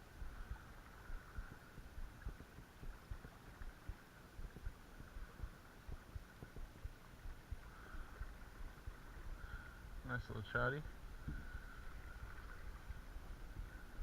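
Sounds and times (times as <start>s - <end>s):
creek water rushing: 0.0s - 14.0s
thumps on microphone: 11.2s - 11.5s.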